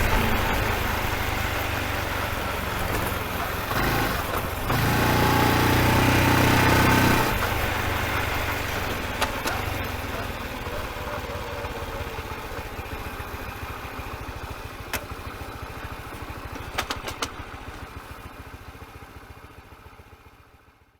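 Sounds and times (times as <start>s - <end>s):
motorcycle engine revving and idling: 0.0s - 20.9s.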